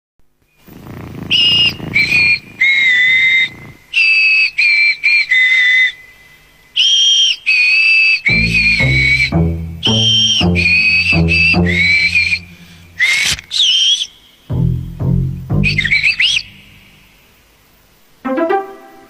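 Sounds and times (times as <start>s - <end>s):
person whistling a tune: 6.8s - 16.6s
low instrumental music: 8.3s - 13.0s, 14.5s - 16.2s, 18.2s - 19.0s.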